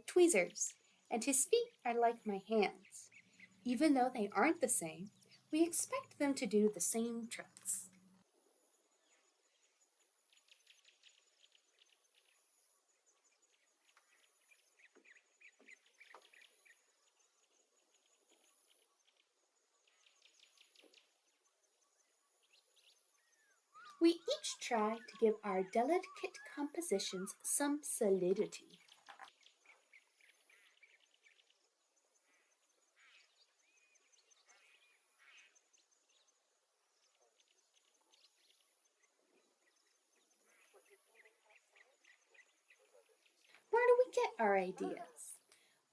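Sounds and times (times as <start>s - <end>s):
faint high chirps and ticks: 0.0s - 45.9s
whistled bird notes: 23.3s - 27.5s.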